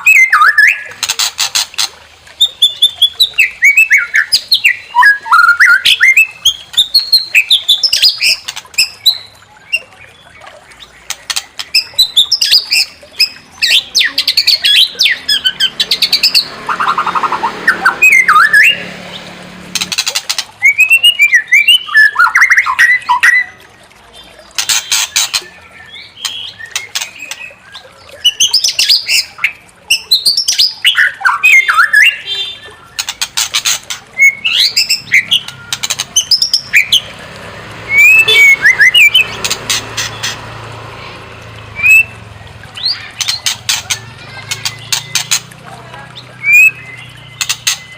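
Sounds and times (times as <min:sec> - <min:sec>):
bird singing whistled phrases: 0:00.0 - 0:00.9, 0:02.4 - 0:10.2, 0:17.7 - 0:18.8, 0:20.6 - 0:23.6, 0:25.3 - 0:33.1, 0:34.2 - 0:37.0, 0:37.9 - 0:39.3, 0:41.8 - 0:43.4, 0:46.2 - 0:47.9
bird harsh clicks and rasping: 0:00.8 - 0:02.0, 0:10.9 - 0:13.4, 0:19.7 - 0:20.9, 0:24.4 - 0:25.6, 0:26.2 - 0:27.6, 0:32.9 - 0:37.0, 0:39.0 - 0:40.5, 0:42.8 - 0:47.9.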